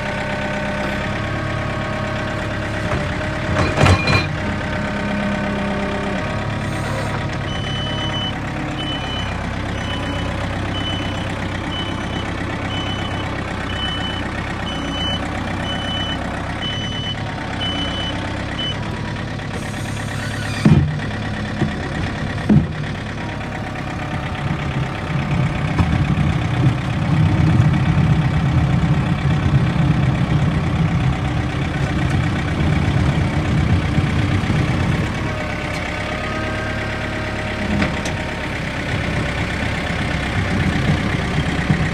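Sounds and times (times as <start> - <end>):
diesel engine running: 0.0 - 41.9
reversing alarm beeping: 7.5 - 18.8.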